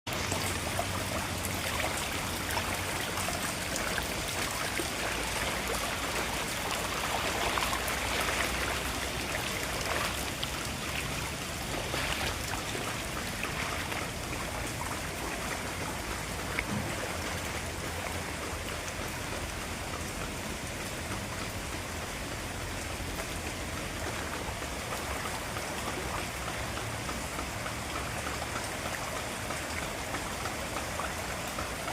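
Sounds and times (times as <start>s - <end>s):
rain falling: 0.1s - 31.9s.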